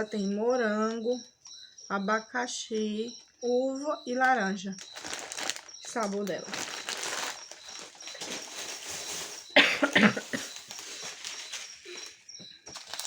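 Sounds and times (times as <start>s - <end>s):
plastic packets crinkling: 4.2s - 13.0s.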